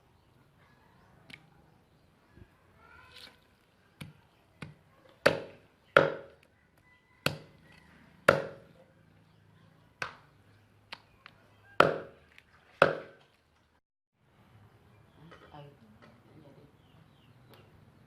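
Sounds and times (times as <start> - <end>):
cleaver chopping on chopping board: 8.3 - 8.6.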